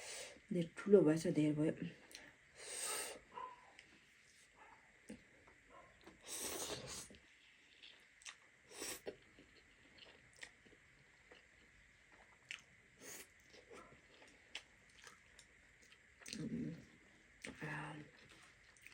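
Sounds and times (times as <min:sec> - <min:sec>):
chewing noodles: 0:06.0 - 0:18.9
slurping: 0:06.3 - 0:08.0.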